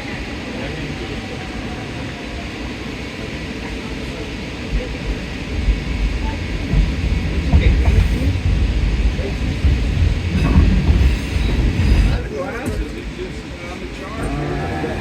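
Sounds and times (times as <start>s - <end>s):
train rumbling and rattling: 0.0s - 15.0s
low thumps: 5.1s - 12.9s.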